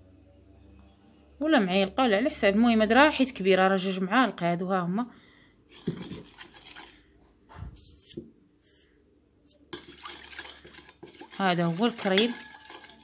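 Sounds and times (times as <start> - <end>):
spoon clinking and scraping dish: 9.6 - 13.0.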